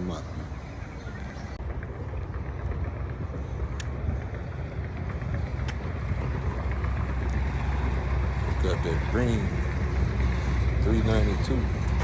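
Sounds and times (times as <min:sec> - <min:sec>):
outdoor rumble and hiss: 0:00.0 - 0:12.0.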